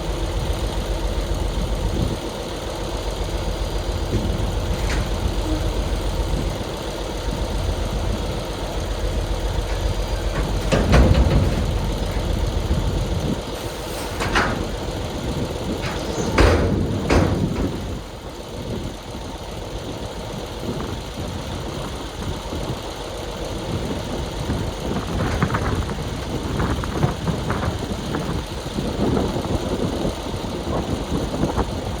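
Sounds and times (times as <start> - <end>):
heavy diesel engine running: 0.0 - 32.0
loud metal clanks: 3.2 - 18.8.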